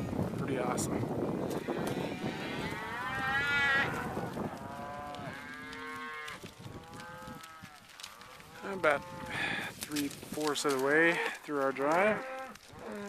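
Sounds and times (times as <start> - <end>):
cattle mooing: 1.5 - 9.4, 11.1 - 13.0.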